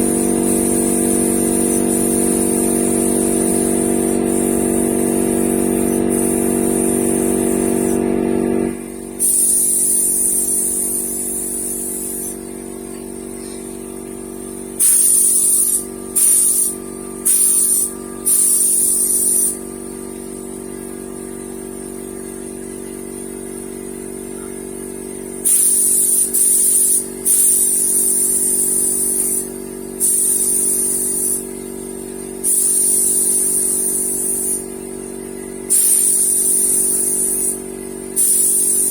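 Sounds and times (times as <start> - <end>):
paint spray gun hissing: 0.0 - 20.8, 25.4 - 38.9
motor humming: 0.0 - 24.8.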